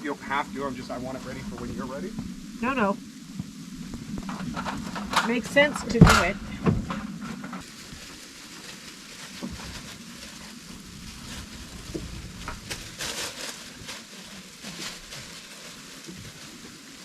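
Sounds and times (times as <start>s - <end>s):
light rain pattering: 0.0s - 17.0s.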